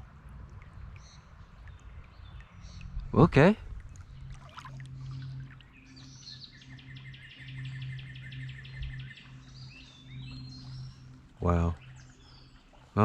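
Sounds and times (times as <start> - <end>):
low steady hum: 0.0 - 13.0
songbird trilling: 4.0 - 12.6.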